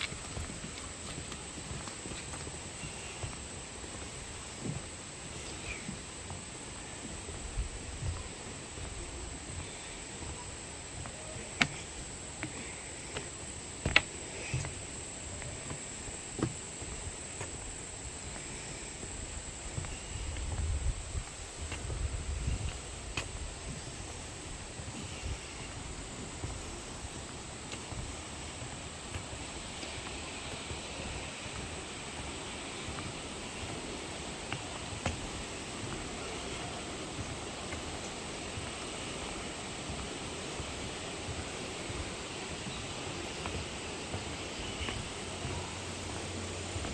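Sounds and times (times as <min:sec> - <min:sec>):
high-pitched insect trill: 0:00.0 - 0:46.9.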